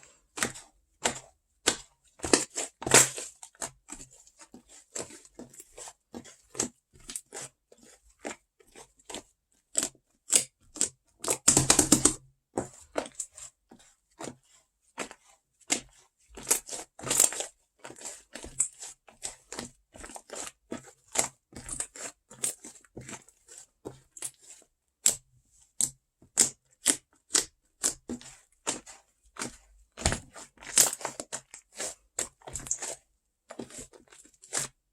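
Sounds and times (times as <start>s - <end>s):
slime clicking and popping: 11.4s - 12.2s.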